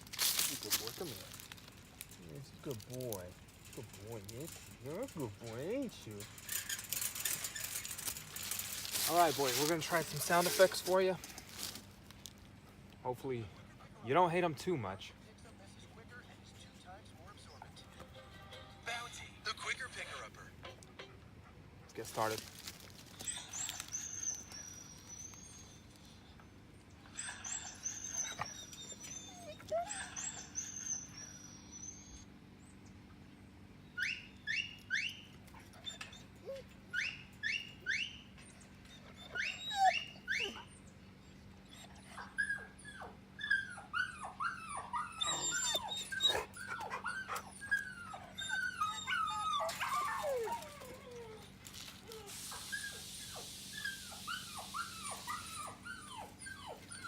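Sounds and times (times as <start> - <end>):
dog whining and whimpering: 23.2 - 26.4, 27.0 - 32.8, 33.9 - 57.0.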